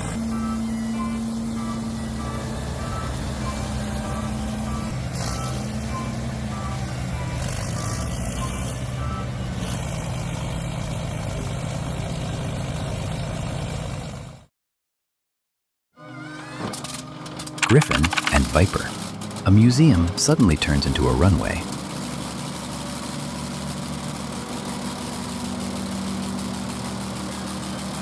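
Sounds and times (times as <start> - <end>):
reversing alarm beeping: 0.0 - 9.4
heavy diesel machinery running: 0.0 - 14.5, 17.6 - 28.0.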